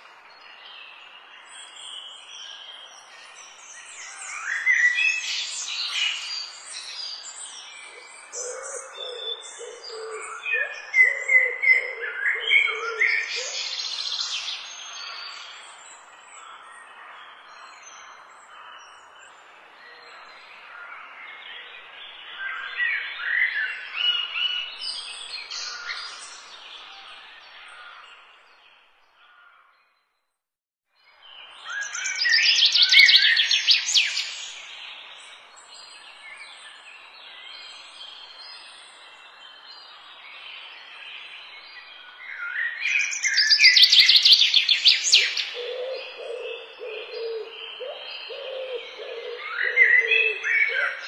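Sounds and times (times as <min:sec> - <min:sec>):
songbirds chirping and singing: 0:00.0 - 0:30.0, 0:31.0 - 0:51.0.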